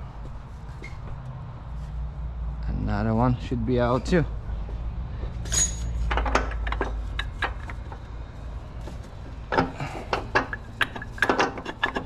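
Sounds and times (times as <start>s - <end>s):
metal clinking and knocking: 5.4s - 8.1s, 8.8s - 12.0s.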